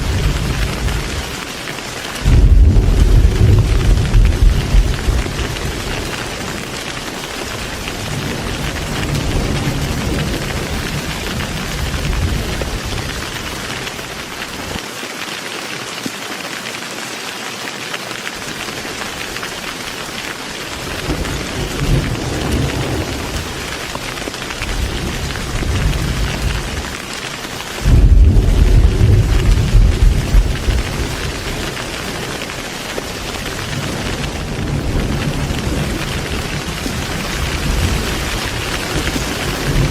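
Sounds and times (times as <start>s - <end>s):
thunder rumbling: 0.0s - 14.8s, 20.7s - 27.0s, 27.7s - 39.9s
heavy rain falling: 0.0s - 39.9s.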